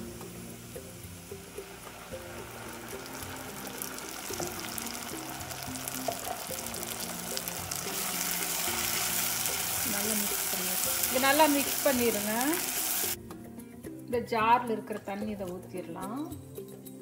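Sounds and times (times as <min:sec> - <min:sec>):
paste sizzling in hot oil: 0:00.0 - 0:13.2.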